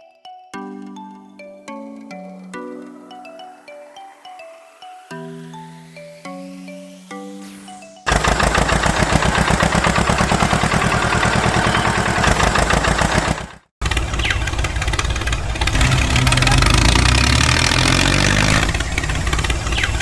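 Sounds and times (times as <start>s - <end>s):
small engine running: 8.1s - 20.0s.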